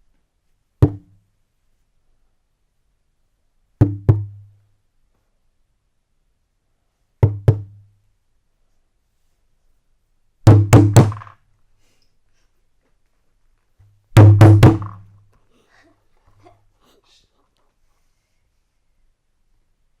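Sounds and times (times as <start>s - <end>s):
knocks on hollow object: 0.8s - 1.1s, 3.8s - 4.4s, 7.2s - 7.8s, 10.5s - 11.4s, 14.2s - 15.1s.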